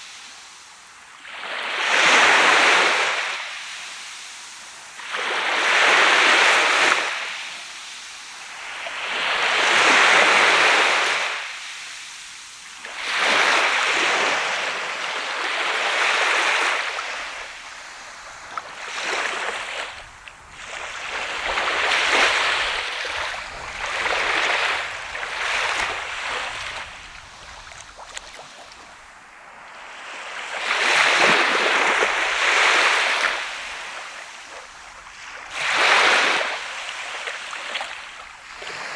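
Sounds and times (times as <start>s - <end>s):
surf breaking on shore: 12.9s - 29.3s, 30.1s - 37.9s.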